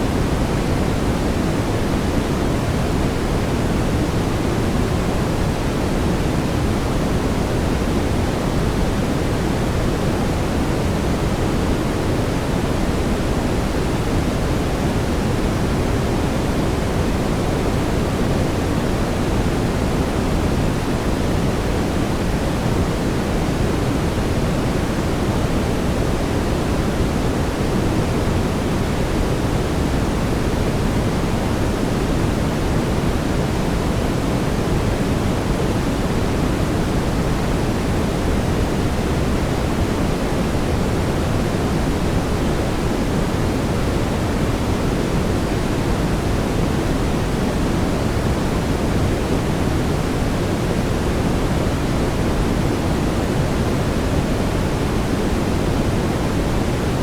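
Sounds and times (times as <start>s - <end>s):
brown noise hiss: 0.0s - 57.0s.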